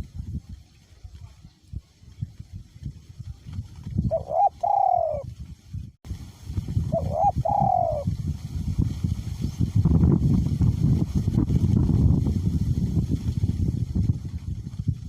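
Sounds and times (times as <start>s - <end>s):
wind on microphone: 0.0s - 15.0s
dove cooing: 4.1s - 5.3s, 6.9s - 8.1s.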